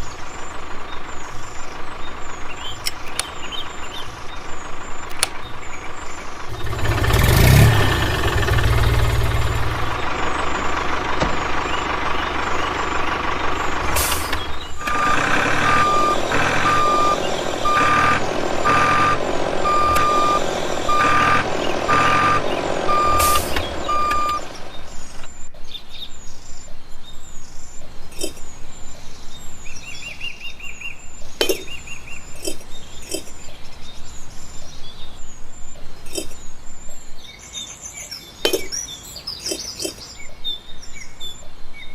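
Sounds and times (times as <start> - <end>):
truck engine running: 0.0 - 36.8
birds chirping: 0.0 - 41.9
reversing alarm beeping: 8.5 - 25.5.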